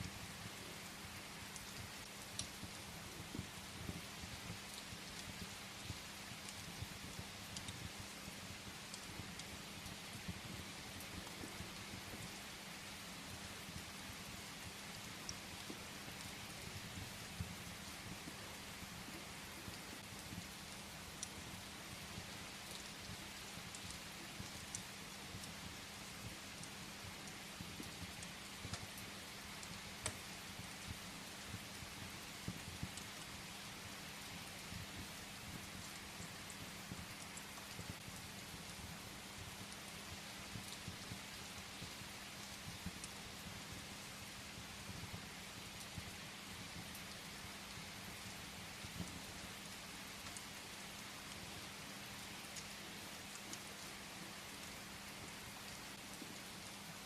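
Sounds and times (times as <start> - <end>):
steady rain: 0.0 - 57.0
wood fire crackling: 0.0 - 57.0.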